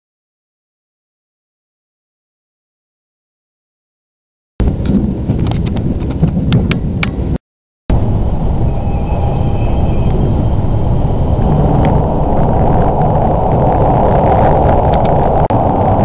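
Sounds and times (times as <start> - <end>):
train rumble inside passenger car: 4.6 - 16.0.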